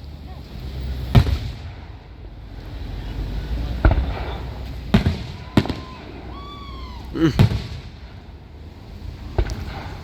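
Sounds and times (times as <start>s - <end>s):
fireworks booms: 1.1s - 2.0s, 3.7s - 8.5s, 9.1s - 10.0s.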